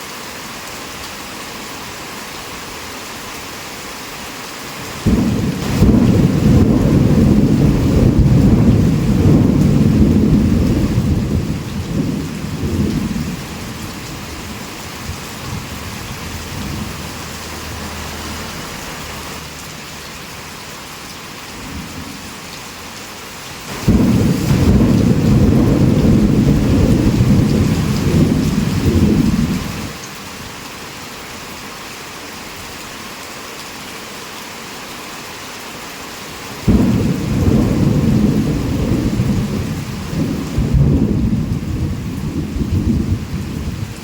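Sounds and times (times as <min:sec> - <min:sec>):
heavy rain falling: 0:00.0 - 0:44.0
rolling thunder: 0:05.0 - 0:17.8, 0:23.7 - 0:29.9, 0:36.6 - 0:44.0.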